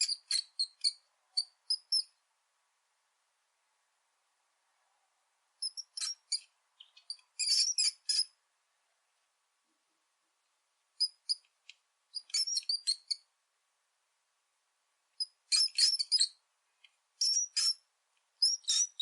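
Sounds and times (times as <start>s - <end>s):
rat squeaking: 0.0s - 2.2s, 5.6s - 8.4s, 11.0s - 11.5s, 12.1s - 13.3s, 15.2s - 16.4s, 17.2s - 19.0s.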